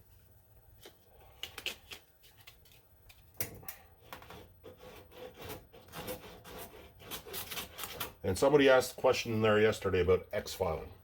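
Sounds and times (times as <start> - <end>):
sandpaper rubbing on body filler: 4.3 - 8.2.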